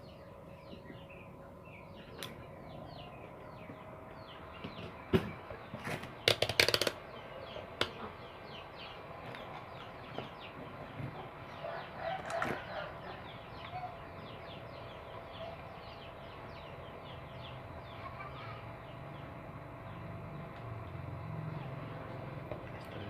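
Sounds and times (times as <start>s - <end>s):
low steady hum: 0.0s - 23.0s
small birds chirping: 0.0s - 23.0s.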